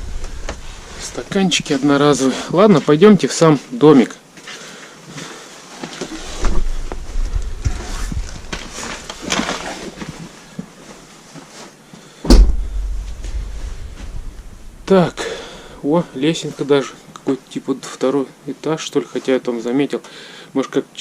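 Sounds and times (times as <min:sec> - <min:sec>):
rustling: 0:05.6 - 0:15.7
knocks: 0:12.3 - 0:13.6
loud thump: 0:12.3 - 0:14.9
footsteps: 0:12.3 - 0:15.2
low rumble: 0:12.3 - 0:15.2.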